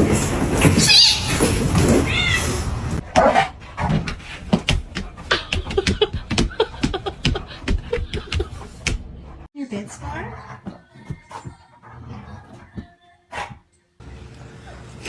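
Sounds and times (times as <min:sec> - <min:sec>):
cat meowing: 0:00.8 - 0:02.7.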